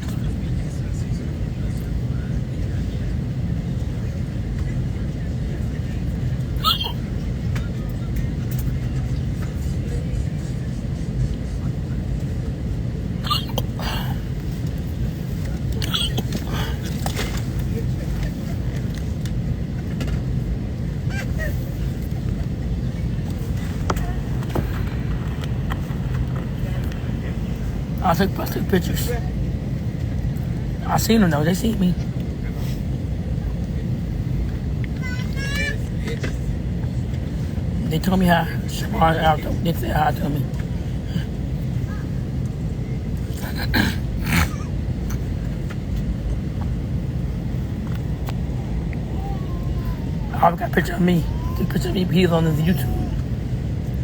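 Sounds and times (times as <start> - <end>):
airliner cabin rumble: 0.0 - 54.0
distant voice: 48.0 - 53.9.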